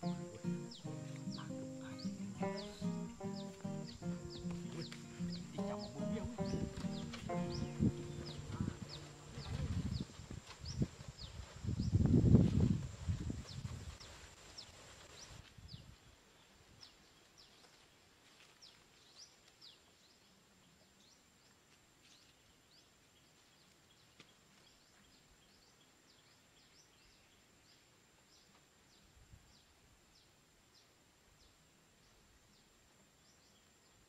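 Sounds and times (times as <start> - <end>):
bird chirps: 0.0 - 10.1
soft low rumble: 4.1 - 11.0.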